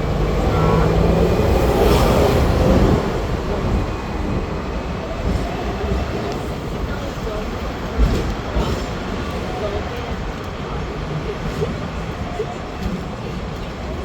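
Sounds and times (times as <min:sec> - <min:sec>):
electric tram running on rails: 0:00.0 - 0:14.0.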